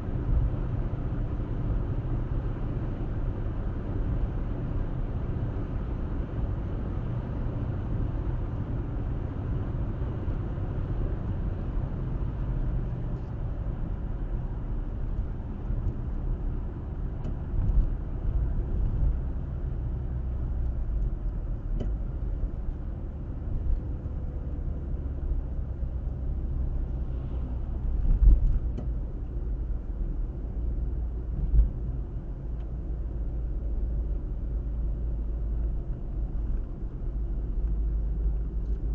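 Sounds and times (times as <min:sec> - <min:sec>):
car tyres and engine rumble: 0:00.0 - 0:38.9.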